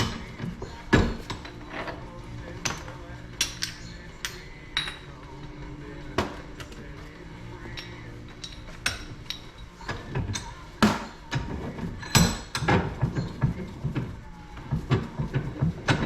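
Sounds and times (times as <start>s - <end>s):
hand tools clinking on metal: 0.0s - 5.2s.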